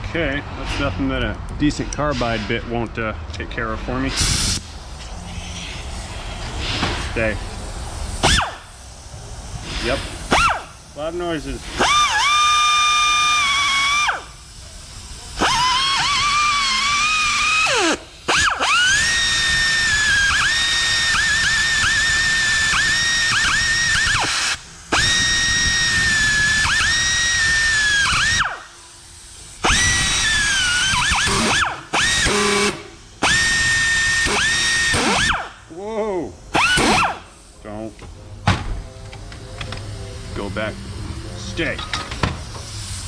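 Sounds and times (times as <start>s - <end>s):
rotary grinder whining on metal: 9.8s - 28.8s, 29.4s - 35.6s, 36.5s - 37.3s.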